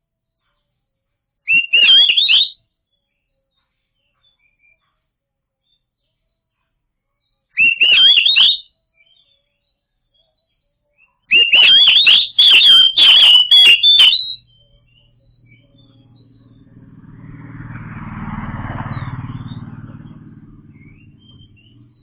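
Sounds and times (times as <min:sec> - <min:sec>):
bird singing high twisting notes: 0:11.4 - 0:22.0
vehicle engine passing by: 0:14.4 - 0:22.0.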